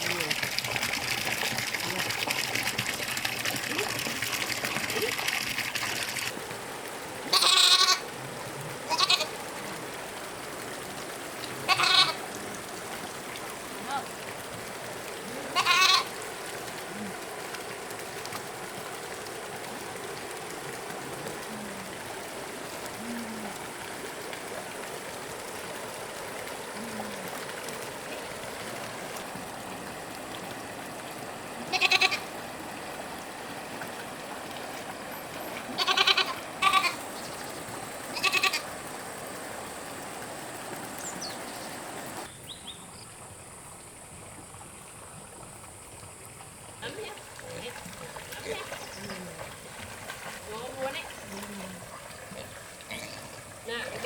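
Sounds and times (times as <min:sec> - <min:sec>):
goats bleating: 0:07.3 - 0:08.0, 0:08.9 - 0:09.3, 0:11.7 - 0:12.2, 0:15.5 - 0:16.1, 0:31.6 - 0:32.3, 0:35.8 - 0:37.0, 0:38.2 - 0:38.6.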